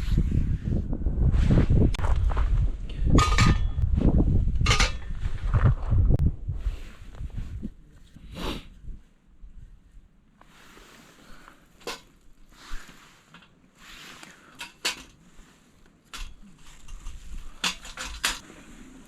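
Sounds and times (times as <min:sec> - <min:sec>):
metal parts clinking: 0:16.1 - 0:18.4.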